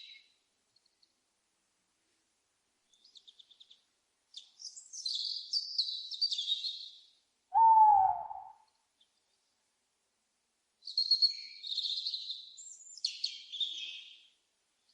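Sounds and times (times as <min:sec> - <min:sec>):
owl hooting: 0:07.5 - 0:08.7
owl high chattering calls: 0:07.6 - 0:08.6.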